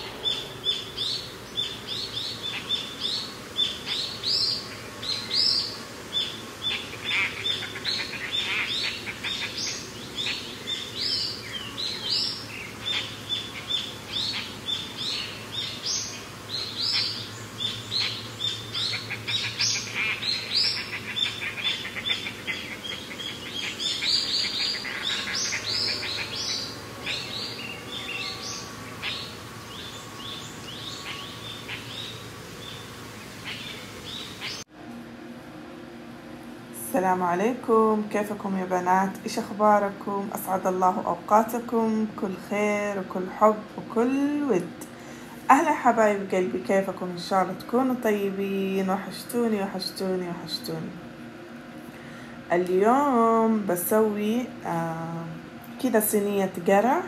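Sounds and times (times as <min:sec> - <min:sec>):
birds chirping: 0:00.0 - 0:34.7.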